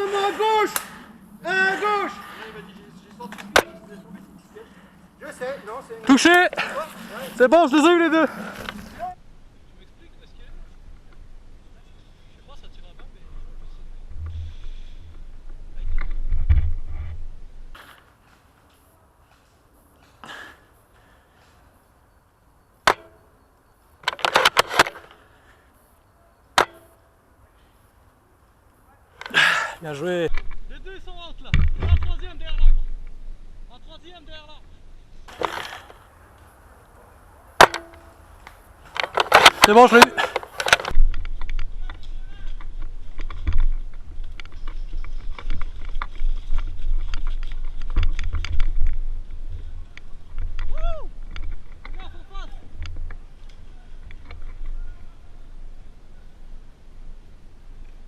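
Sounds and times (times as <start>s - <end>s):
low microphone rumble: 13.2s - 17.8s
brief rustle: 35.2s - 36.5s.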